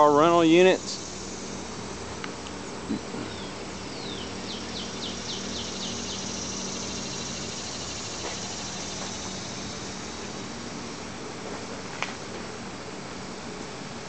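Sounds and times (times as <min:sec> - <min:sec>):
low machine hum: 0:00.0 - 0:14.0
bird chirping: 0:02.6 - 0:09.8.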